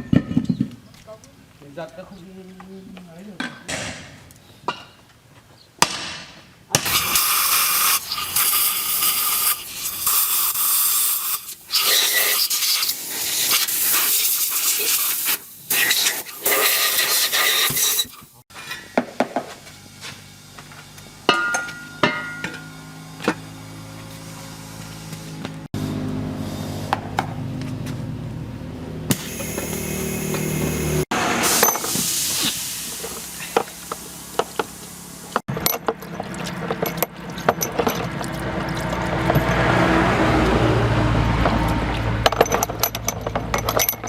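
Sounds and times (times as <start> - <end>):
loud hissing spray: 6.9 - 18.4, 29.1 - 35.4
light metallic clinks and taps: 35.6 - 39.6.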